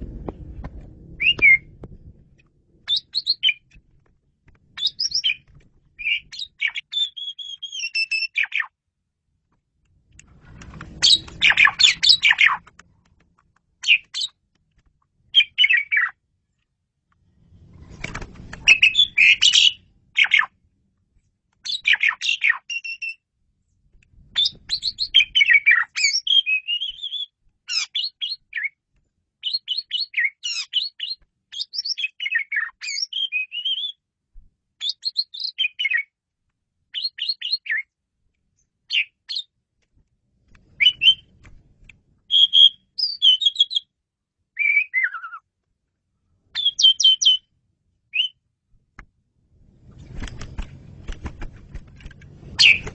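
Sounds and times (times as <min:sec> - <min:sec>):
starling singing: 0:02.9 - 0:03.7, 0:04.8 - 0:08.7, 0:11.0 - 0:12.6, 0:46.6 - 0:47.4, 0:52.6 - 0:52.9.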